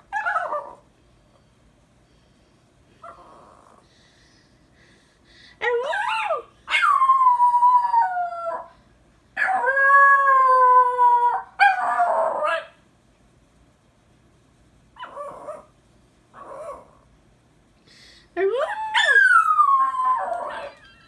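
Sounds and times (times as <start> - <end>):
small dog howling: 18.6 - 21.0.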